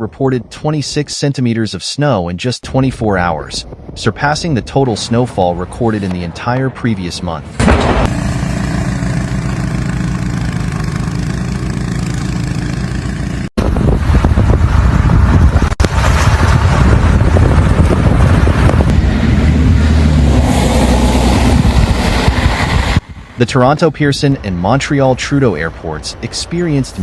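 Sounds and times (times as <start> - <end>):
rough engine rumble: 5.6 - 27.0
vehicle engine hum: 5.6 - 27.0.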